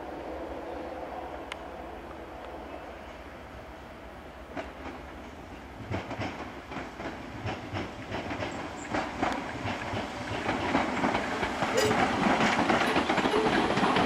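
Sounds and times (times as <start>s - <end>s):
train wheels clattering over joints: 5.8s - 14.0s.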